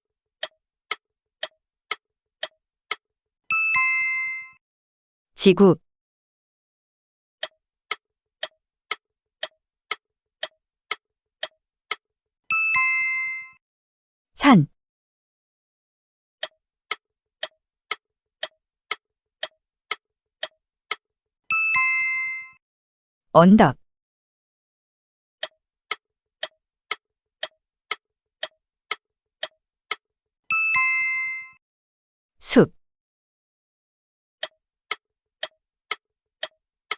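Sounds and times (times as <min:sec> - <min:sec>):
clock ticking: 0:00.4 - 0:04.6, 0:07.4 - 0:12.0, 0:16.4 - 0:21.0, 0:25.4 - 0:30.0, 0:34.4 - 0:36.9
two-note ding-dong chime: 0:03.5 - 0:04.6.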